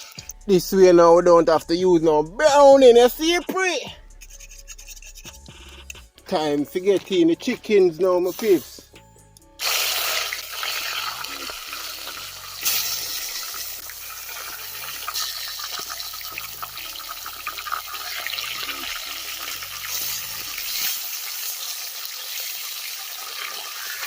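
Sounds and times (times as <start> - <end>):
chicken sizzling in hot oil: 9.6 - 24.0.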